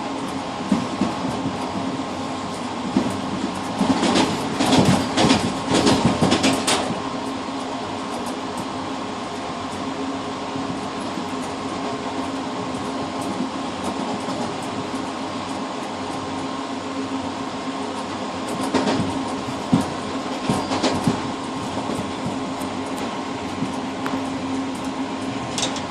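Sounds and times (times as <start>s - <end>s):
train rumbling on track: 0.0s - 25.9s
rail-joint clacks: 2.5s - 8.7s, 10.7s - 16.4s, 17.9s - 25.9s.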